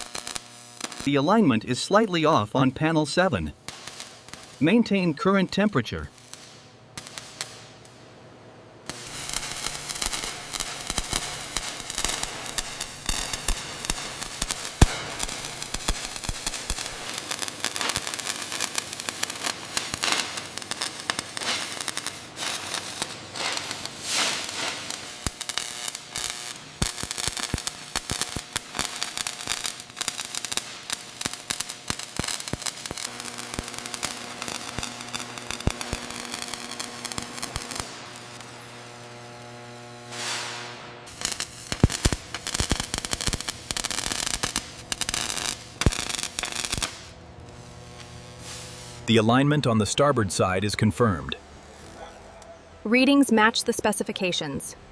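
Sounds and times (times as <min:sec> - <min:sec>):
crackling and popping: 0:00.0 - 0:01.2, 0:03.4 - 0:08.0, 0:08.9 - 0:52.5
steady low hum: 0:44.4 - 0:53.5.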